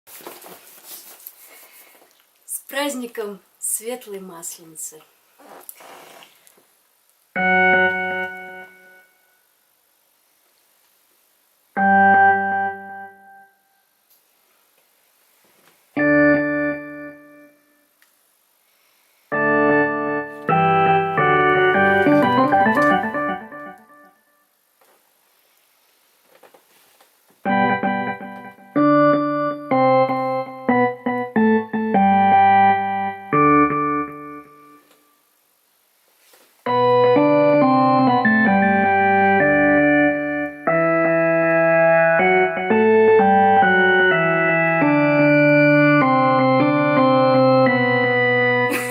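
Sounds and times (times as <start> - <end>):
electric piano chords: 7.4 - 9.2, 11.7 - 13.6, 16.0 - 17.7, 19.3 - 24.2, 27.4 - 35.0, 36.7 - 48.9.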